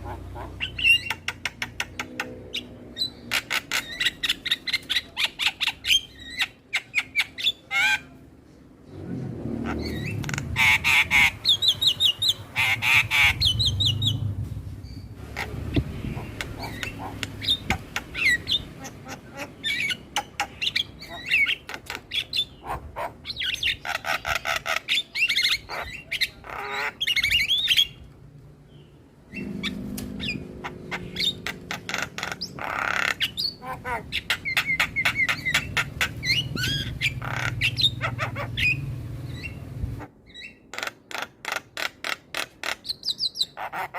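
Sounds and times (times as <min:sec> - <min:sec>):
myna calling: 0:00.0 - 0:02.3, 0:15.2 - 0:27.9, 0:29.3 - 0:40.1.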